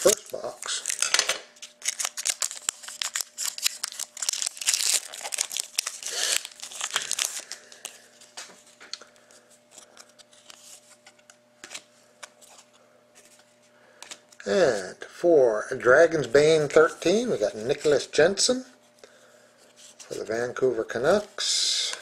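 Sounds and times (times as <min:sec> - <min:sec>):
wrapper crinkling and tearing: 0:00.0 - 0:08.0
cards rustling and clicking: 0:00.0 - 0:09.0, 0:09.7 - 0:14.3.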